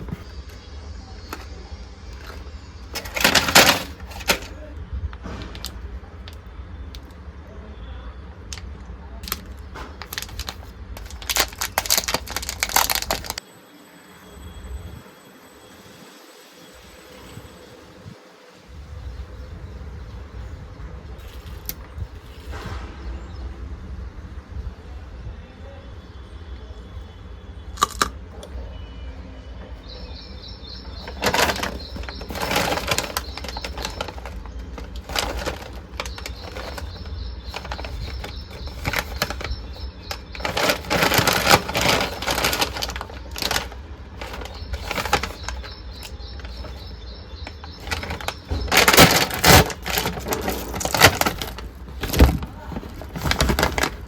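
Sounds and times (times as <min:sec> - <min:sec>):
snack packets rustling: 0:01.2 - 0:04.6, 0:05.2 - 0:06.4, 0:09.2 - 0:13.4, 0:27.8 - 0:28.2, 0:30.4 - 0:54.0.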